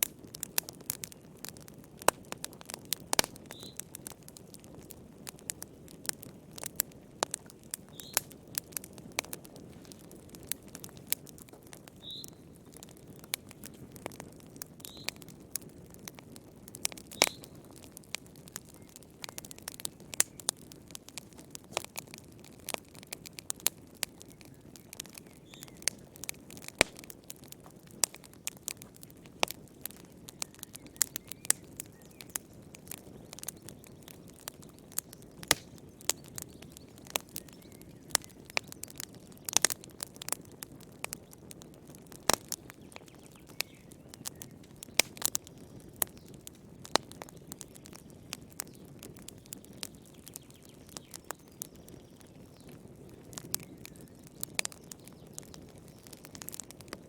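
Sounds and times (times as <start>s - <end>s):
burning logs crackling: 0.0s - 57.0s.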